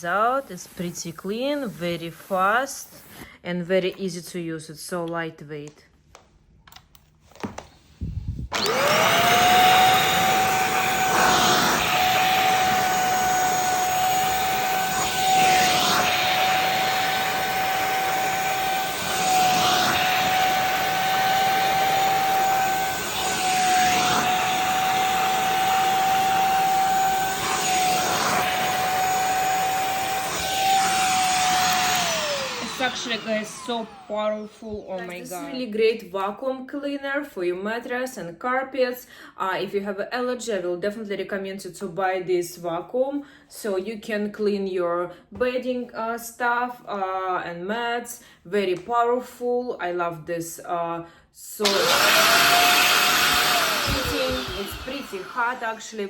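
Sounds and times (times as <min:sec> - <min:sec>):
vacuum swishing across mattress: 0:00.0 - 0:03.2, 0:08.0 - 0:35.5, 0:51.6 - 0:56.0
handheld vacuum cleaner whining: 0:08.5 - 0:35.6, 0:51.6 - 0:56.0.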